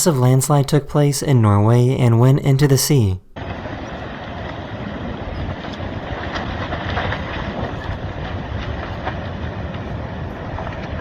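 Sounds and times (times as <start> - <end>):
low rumble: 3.3 - 11.0
faint crackles: 3.4 - 11.0
wind noise on microphone: 3.4 - 11.0.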